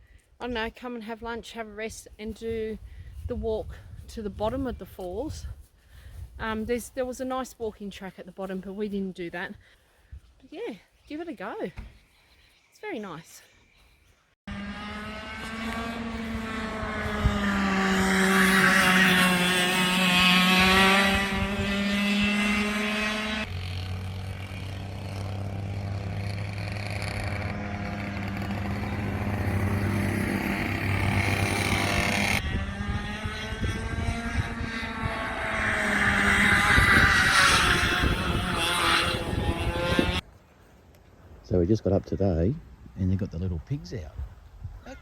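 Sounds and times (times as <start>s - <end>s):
vehicle engine cruising: 14.5s - 40.2s.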